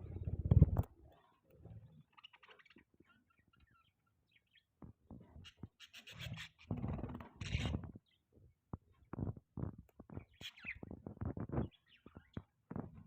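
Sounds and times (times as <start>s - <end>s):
budgerigars chirping softly: 1.8s - 8.2s, 10.1s - 12.5s.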